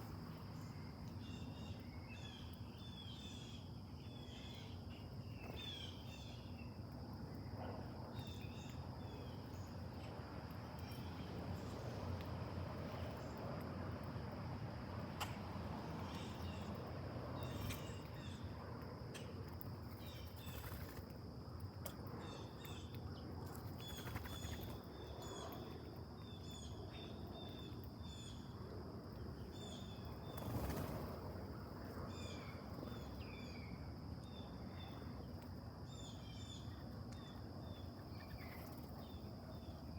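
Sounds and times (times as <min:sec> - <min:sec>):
small birds chirping: 0:21.8 - 0:28.5.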